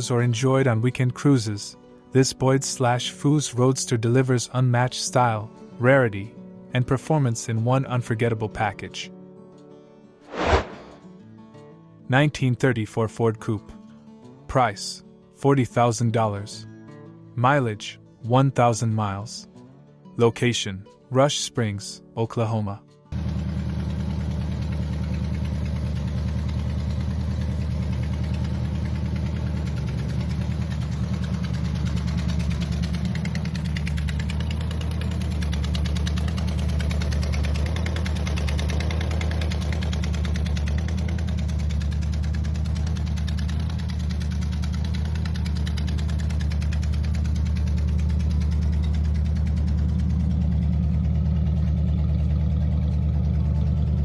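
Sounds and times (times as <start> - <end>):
car engine idling: 23.2 - 54.0.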